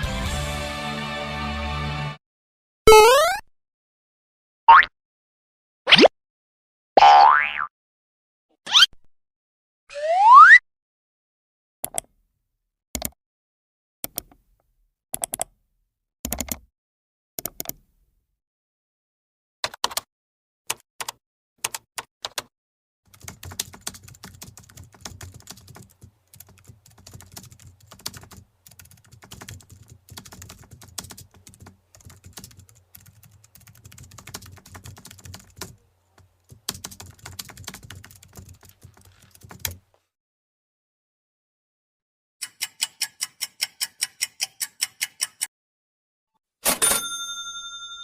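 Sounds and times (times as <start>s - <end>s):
typing on computer keyboard: 13.0s - 13.2s, 15.2s - 15.5s, 16.3s - 16.7s, 17.4s - 17.8s, 19.6s - 20.1s, 20.7s - 22.5s, 23.1s - 39.8s.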